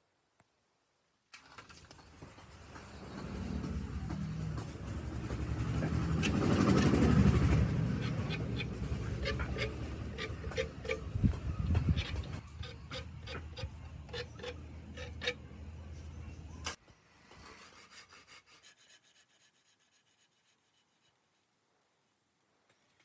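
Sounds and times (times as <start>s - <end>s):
hand tool rasping on wood: 5.2s - 16.3s
faint scratching strokes: 5.2s - 16.7s, 17.4s - 22.2s.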